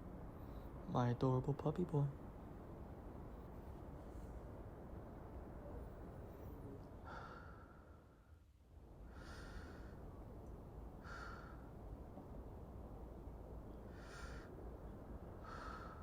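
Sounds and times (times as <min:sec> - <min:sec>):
faint low hum: 0:00.0 - 0:16.0
soft breathing: 0:06.2 - 0:08.4, 0:15.4 - 0:16.0.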